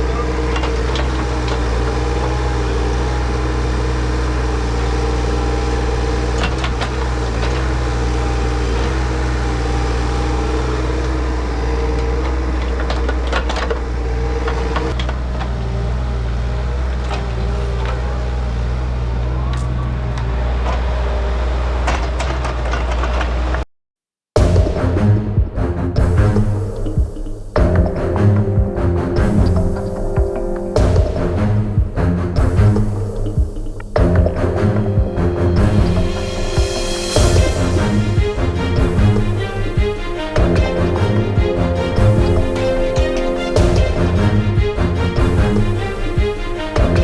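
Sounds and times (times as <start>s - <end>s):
digger diesel engine running: 24.4s - 47.0s.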